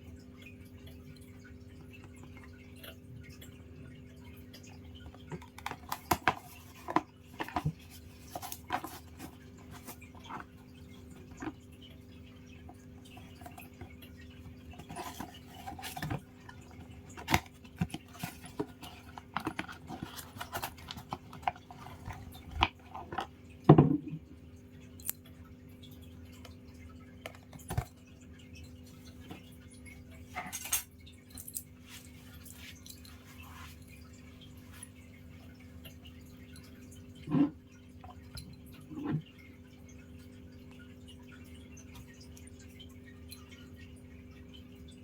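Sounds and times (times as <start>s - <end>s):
box and bottle handling clicks: 5.3s - 10.5s, 14.8s - 23.3s.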